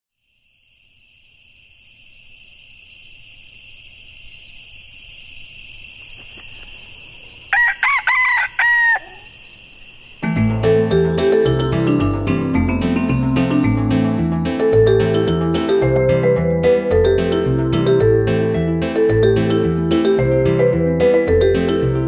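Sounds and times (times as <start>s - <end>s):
rooster crowing: 7.5s - 9.4s.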